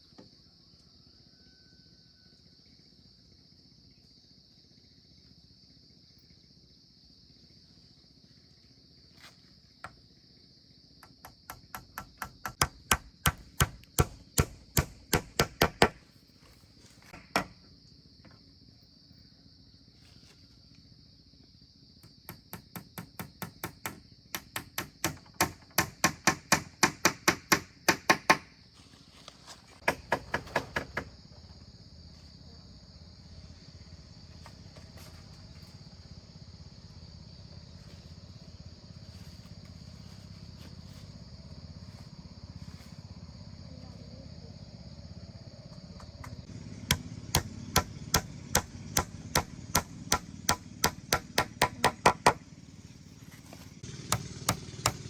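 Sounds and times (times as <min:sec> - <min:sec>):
crickets chirping: 0:00.0 - 0:55.0
hand hammering: 0:11.0 - 0:16.0, 0:17.2 - 0:17.6, 0:22.3 - 0:28.4, 0:46.9 - 0:52.4, 0:54.1 - 0:55.0.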